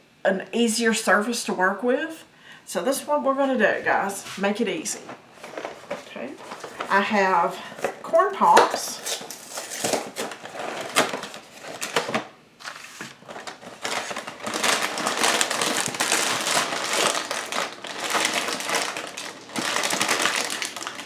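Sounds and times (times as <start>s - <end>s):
cereal box and plastic bag crinkling: 5.4s - 21.0s.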